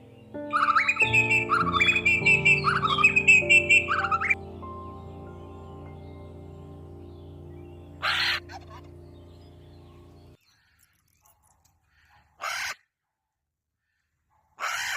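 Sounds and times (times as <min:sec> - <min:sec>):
background music: 0:00.0 - 0:10.4
chicken squawking: 0:00.5 - 0:04.4, 0:08.0 - 0:08.9, 0:12.4 - 0:12.8, 0:14.6 - 0:14.9.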